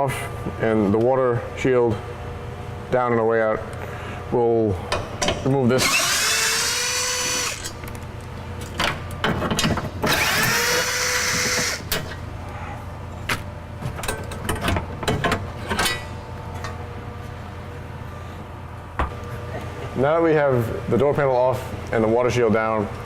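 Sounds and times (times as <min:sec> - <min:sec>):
cordless drill whining: 0:05.8 - 0:07.7, 0:10.1 - 0:11.8.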